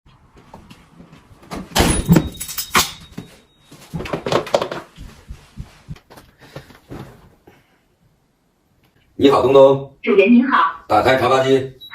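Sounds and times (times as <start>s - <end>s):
clattering knocks and thuds: 1.4s - 7.3s.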